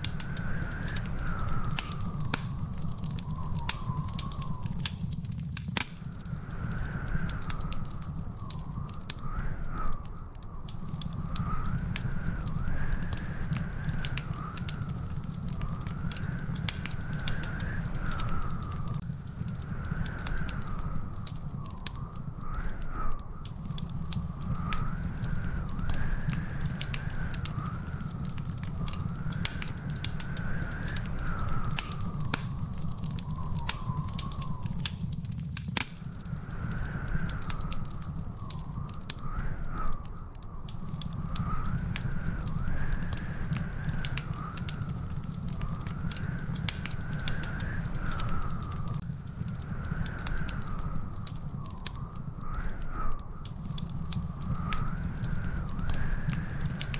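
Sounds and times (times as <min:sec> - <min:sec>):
low rumble of flame: 0:00.0 - 0:56.9
wood fire crackling and popping: 0:00.0 - 0:56.9
high wavering whistle-like tone: 0:28.7 - 0:35.1.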